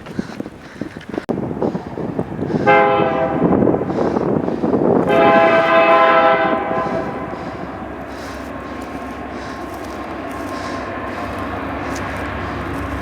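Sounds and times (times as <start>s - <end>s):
passing train rumble: 1.2s - 13.0s
locomotive horn blasts: 2.6s - 3.9s, 5.0s - 13.0s.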